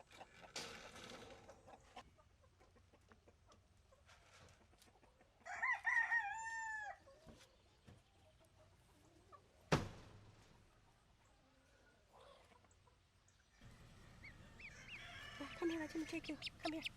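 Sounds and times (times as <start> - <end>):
rooster crowing: 5.4 - 7.0, 13.6 - 16.0.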